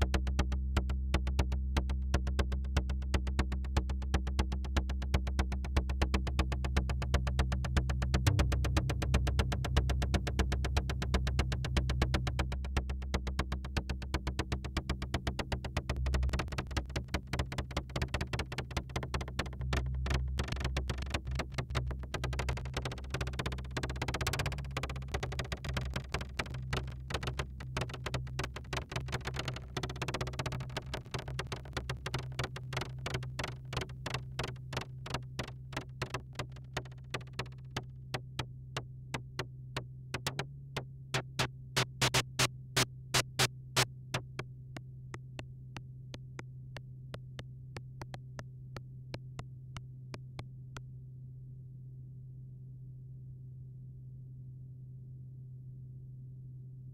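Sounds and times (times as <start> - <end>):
clicky plucked synth notes: 0.0 - 50.4
synthesizer fast repeating sequence: 41.2 - 44.4.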